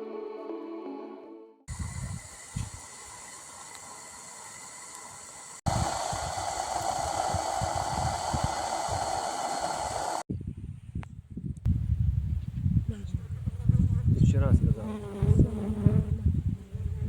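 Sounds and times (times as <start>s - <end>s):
wind buffeting microphone: 1.7s - 3.2s, 5.6s - 17.0s.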